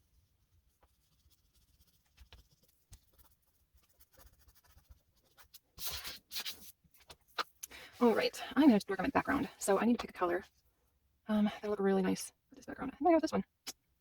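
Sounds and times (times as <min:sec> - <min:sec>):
oil pastel scraping on paper: 0:00.6 - 0:10.4.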